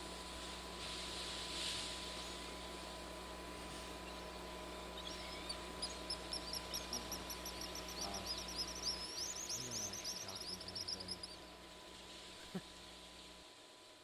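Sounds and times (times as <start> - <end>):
faint steady hiss: 0.0 - 14.0
bird chirping rapidly: 4.0 - 11.6.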